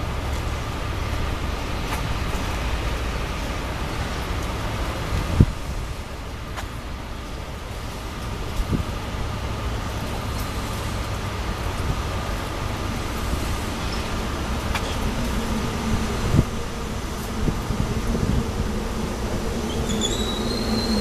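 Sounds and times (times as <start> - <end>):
electric train rumble and hum: 0.0 - 21.0
high brake squeal: 19.6 - 21.0.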